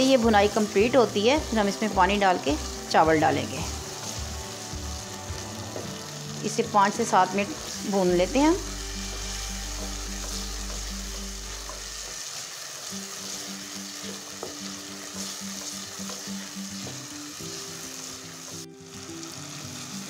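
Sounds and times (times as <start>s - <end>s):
food sizzling in a pot: 0.0s - 20.0s
wooden spatula stirring: 7.4s - 17.1s.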